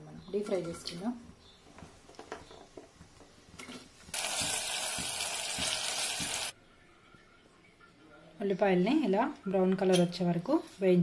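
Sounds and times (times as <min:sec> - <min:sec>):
onions sizzling in hot oil: 0:03.6 - 0:06.6.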